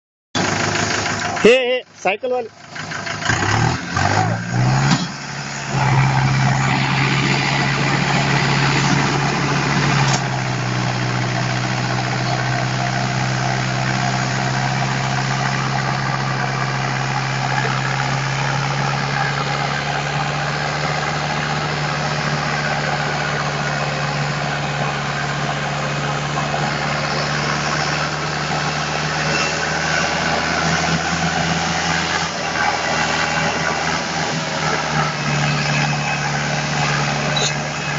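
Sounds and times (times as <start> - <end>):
tractor diesel engine running: 0.3 - 37.9.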